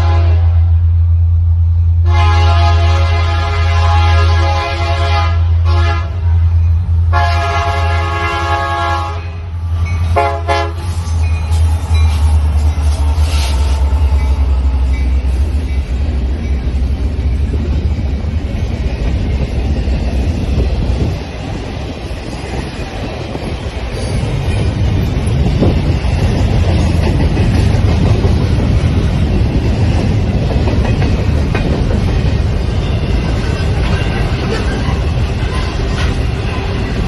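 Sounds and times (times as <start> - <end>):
diesel locomotive engine rumble: 0.0 - 37.0
freight cars wheels on rails: 9.2 - 37.0.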